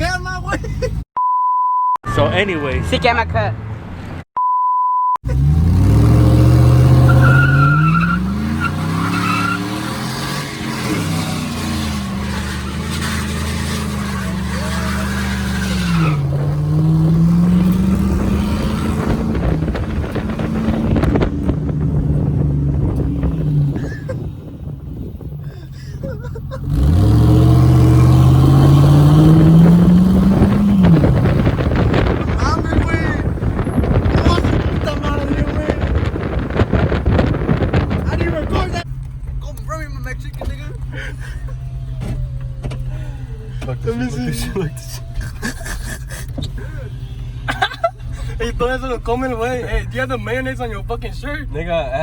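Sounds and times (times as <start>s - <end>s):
vehicle engine accelerating: 5.2s - 46.6s.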